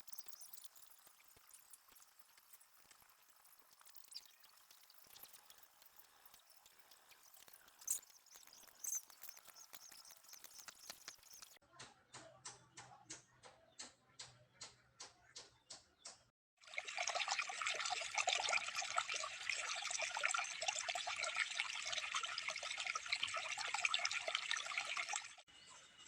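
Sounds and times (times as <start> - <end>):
evenly spaced clicks: 0.0 - 11.6
water running and splashing: 0.0 - 11.6, 16.6 - 25.4.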